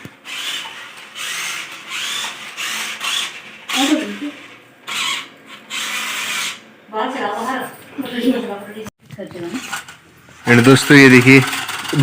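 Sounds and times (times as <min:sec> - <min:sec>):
toy car electric motor whirring: 0:00.0 - 0:06.7, 0:09.4 - 0:12.0.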